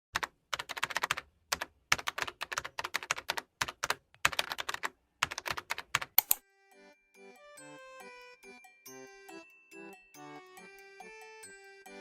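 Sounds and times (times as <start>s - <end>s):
typing on computer keyboard: 0.2s - 6.4s.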